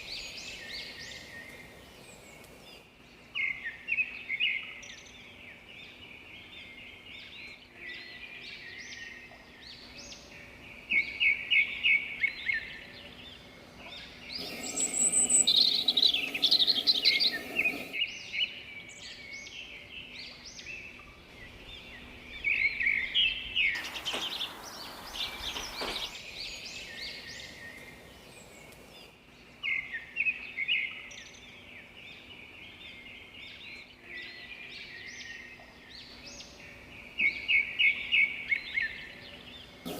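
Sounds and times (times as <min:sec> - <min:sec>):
steady hiss: 0:00.0 - 0:03.4, 0:10.9 - 0:18.3, 0:21.2 - 0:30.3, 0:39.6 - 0:39.9
songbirds chirping and singing: 0:00.0 - 0:39.9.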